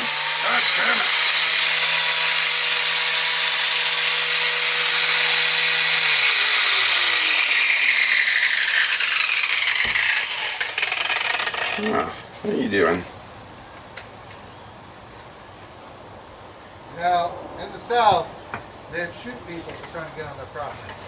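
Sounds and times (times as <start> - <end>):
electric grinder grinding steel: 0.0 - 12.2.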